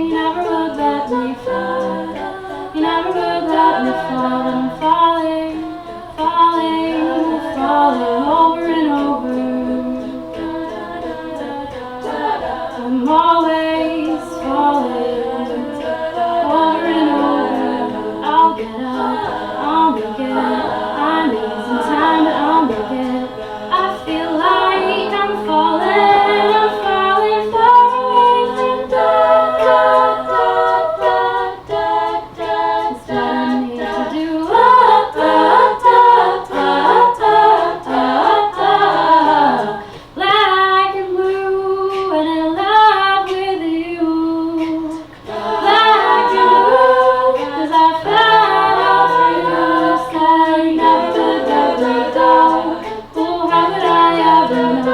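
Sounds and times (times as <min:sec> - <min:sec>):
choir backing voices: 0:00.0 - 0:54.9
woman singing lead: 0:00.0 - 0:54.9.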